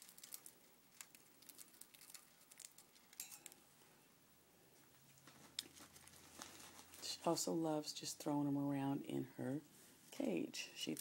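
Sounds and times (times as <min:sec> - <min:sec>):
bird beak crunching cereal: 0:00.0 - 0:03.6.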